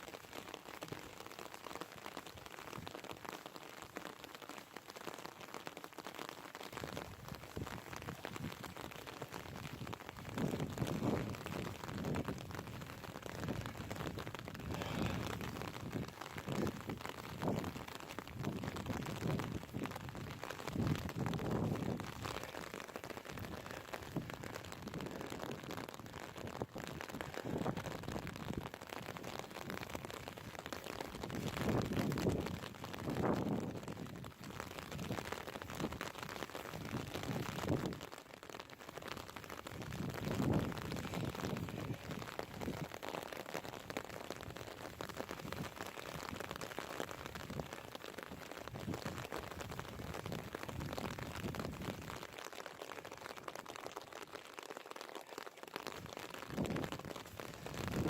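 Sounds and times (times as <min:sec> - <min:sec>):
light rain hiss: 0:00.0 - 0:58.0
wind buffeting microphone: 0:09.5 - 0:22.6, 0:39.8 - 0:42.9.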